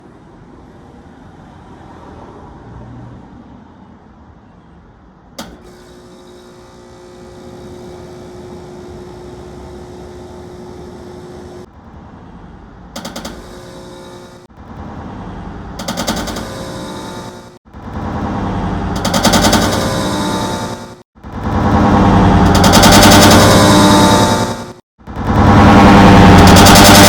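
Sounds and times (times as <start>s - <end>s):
sharp click: 5.4s - 6.8s
fast rattling pulses: 15.7s - 27.0s.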